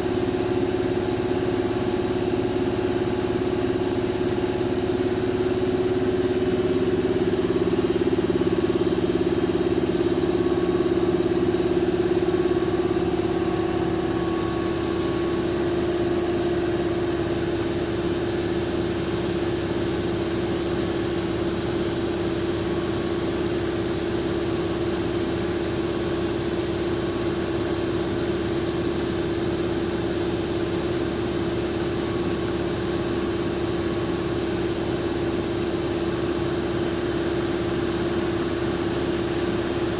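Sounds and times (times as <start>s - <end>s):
lathe machine hum: 0.0s - 19.4s
faint high whine: 6.0s - 17.8s.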